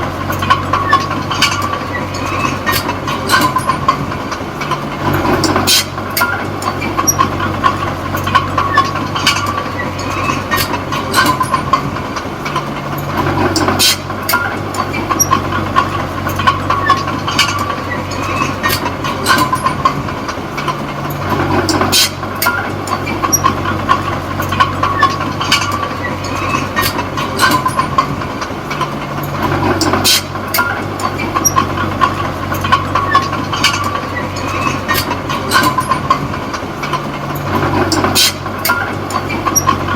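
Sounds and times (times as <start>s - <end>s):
bulldozer diesel engine: 0.0s - 39.9s
steel tracks clanking: 0.0s - 39.9s.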